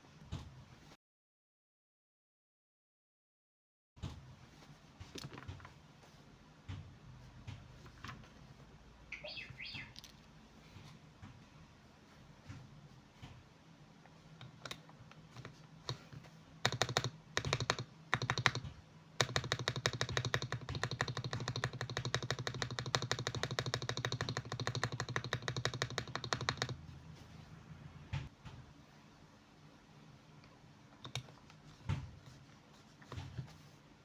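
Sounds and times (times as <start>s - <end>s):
mechanical keyboard typing: 16.6s - 26.8s.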